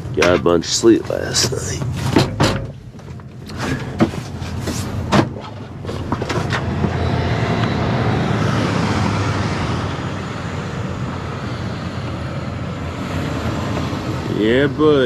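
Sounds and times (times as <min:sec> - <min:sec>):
sharp clicks and knocks: 0:00.0 - 0:00.6, 0:01.3 - 0:07.0
road noise: 0:00.0 - 0:15.0
truck engine: 0:00.0 - 0:15.0.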